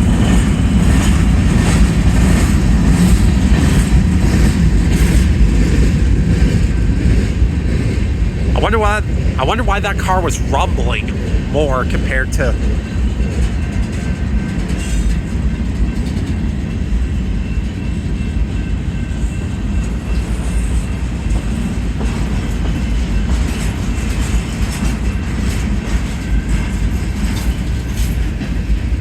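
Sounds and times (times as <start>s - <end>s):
train wheels rumbling on rail: 0.0s - 29.0s
wheels clacking over rail joints: 12.6s - 29.0s.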